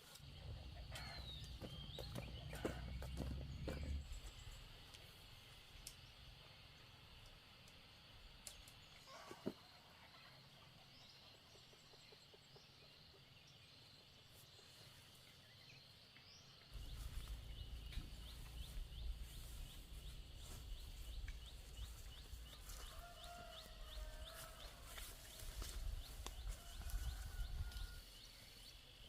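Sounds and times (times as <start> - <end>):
low rumble: 16.8 - 22.4.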